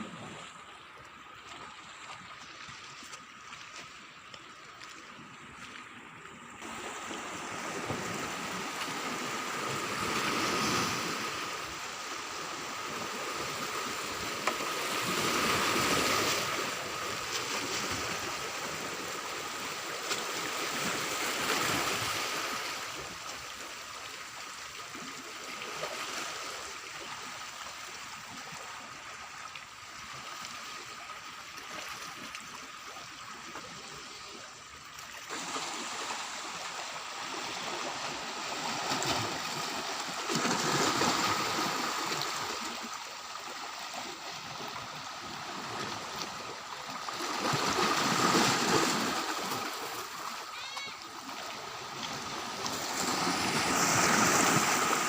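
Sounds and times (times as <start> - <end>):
seawater washing against shore: 34.6 - 55.0.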